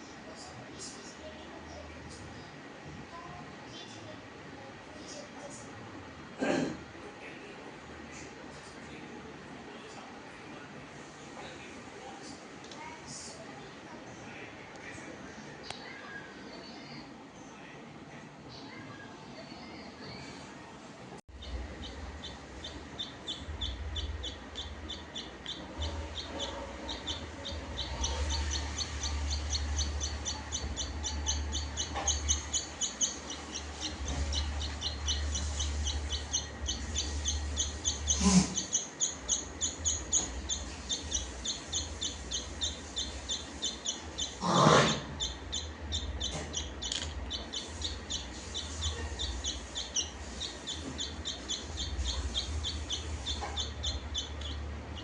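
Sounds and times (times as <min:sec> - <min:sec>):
small birds chirping: 0:21.3 - 0:55.0.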